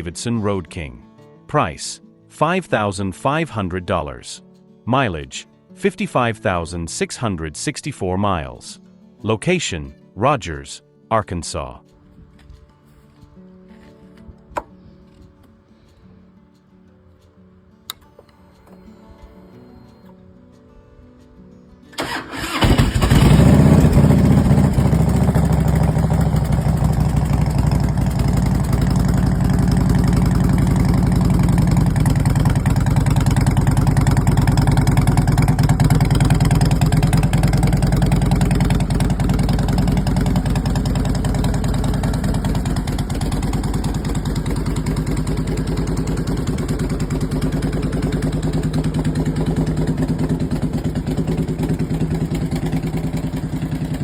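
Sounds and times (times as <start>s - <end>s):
motorcycle engine idling: 22.0s - 54.0s.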